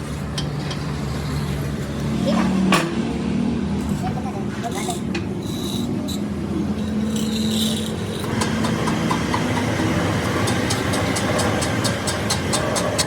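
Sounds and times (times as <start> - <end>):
heavy machine engine idling: 8.2 - 13.0.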